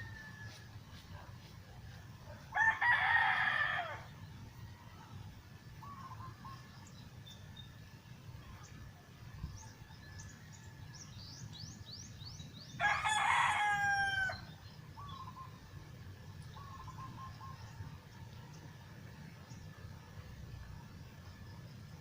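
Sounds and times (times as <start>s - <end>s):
rooster crowing: 0.0s - 0.7s, 2.5s - 4.1s, 12.8s - 14.5s.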